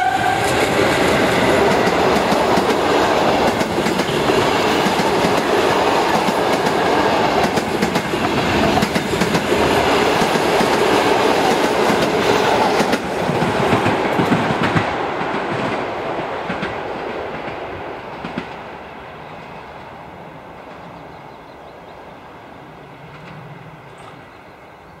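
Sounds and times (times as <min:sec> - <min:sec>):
train rumble: 0:00.0 - 0:25.0
train wheels clicking over rail joints: 0:00.2 - 0:18.6.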